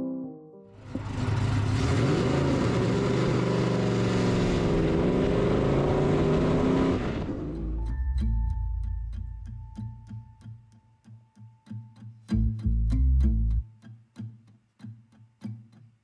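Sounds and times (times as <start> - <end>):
wind and road noise: 0.8 - 7.8
car engine running at speed: 0.8 - 8.4.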